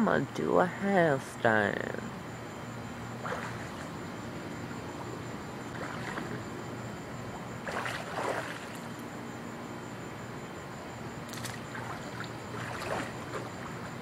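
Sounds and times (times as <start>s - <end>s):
pool water sloshing: 3.2s - 4.1s, 4.9s - 9.2s, 11.0s - 14.0s
water splashes: 5.7s - 6.4s, 7.6s - 9.0s, 11.3s - 14.0s.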